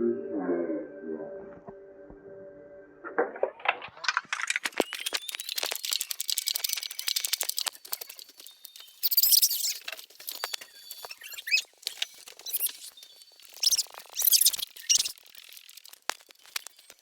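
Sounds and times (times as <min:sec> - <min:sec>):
small bird chirping: 0:04.8 - 0:15.8.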